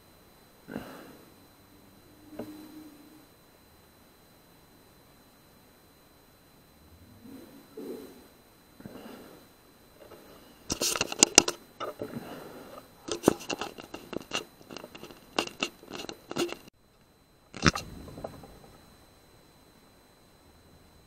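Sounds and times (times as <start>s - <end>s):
air rifle being handled: 10.0s - 12.1s, 12.7s - 16.7s.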